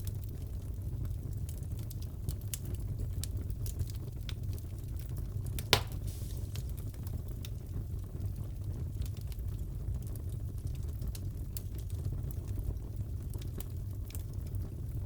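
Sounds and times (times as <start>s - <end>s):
wood fire crackling: 0.0s - 15.0s
fire pops: 5.6s - 7.6s.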